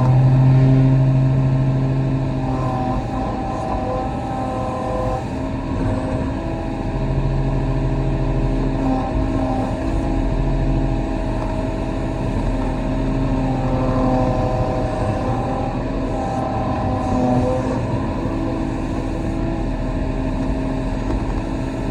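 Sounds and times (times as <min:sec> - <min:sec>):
excavator diesel engine running: 0:00.0 - 0:21.9.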